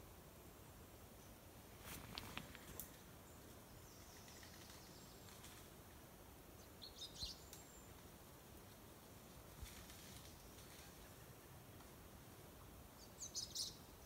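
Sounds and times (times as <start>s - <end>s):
faint high bird chirps: 2.6s - 5.4s, 6.6s - 8.0s, 13.0s - 14.0s.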